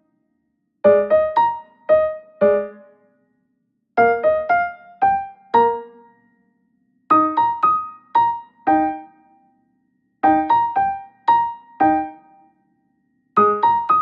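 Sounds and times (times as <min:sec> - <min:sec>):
piano-like keyboard notes: 0:00.9 - 0:02.9, 0:04.0 - 0:06.1, 0:07.1 - 0:09.2, 0:10.2 - 0:12.4, 0:13.4 - 0:14.0.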